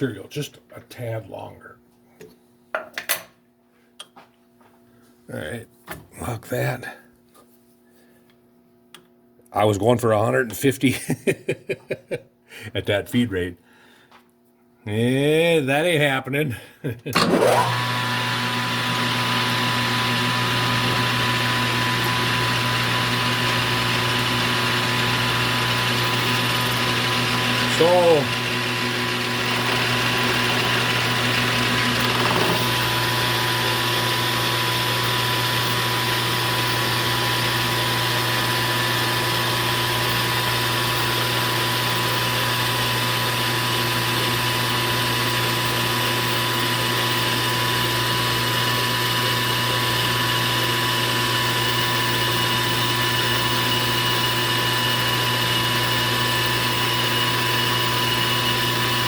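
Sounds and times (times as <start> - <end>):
machine tool cutting metal: 21.8 - 37.9.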